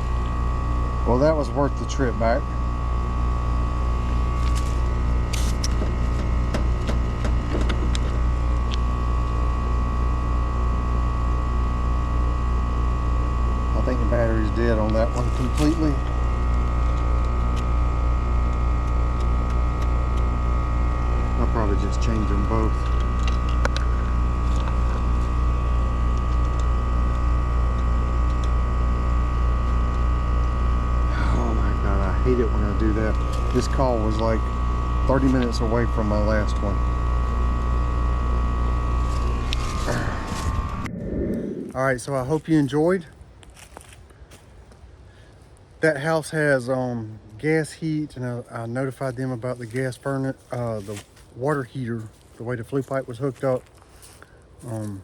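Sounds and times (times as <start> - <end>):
motor humming: 0.0 - 41.9.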